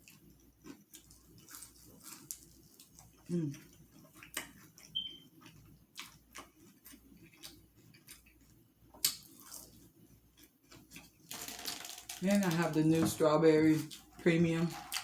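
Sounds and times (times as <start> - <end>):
chewing and lip smacking: 0.0 - 11.3.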